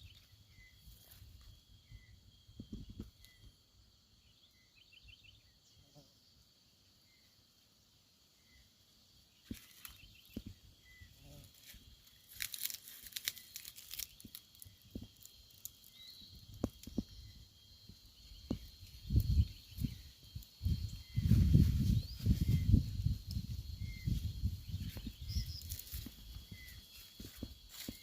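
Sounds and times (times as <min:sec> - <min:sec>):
high-pitched insect buzzing: 0:09.5 - 0:28.0
rustling and crackling: 0:11.5 - 0:16.0.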